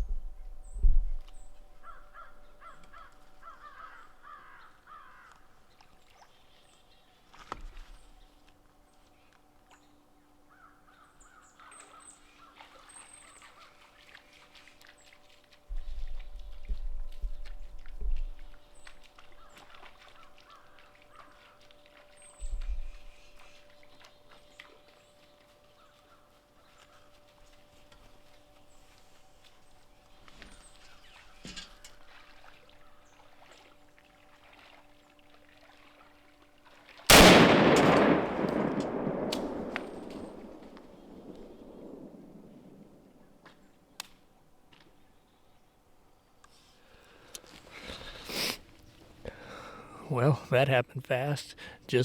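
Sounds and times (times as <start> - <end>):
faint bird calls: 0.6 - 5.5, 18.4 - 27.3
crows cawing: 1.8 - 5.4
small ticks and crackles: 12.4 - 33.7.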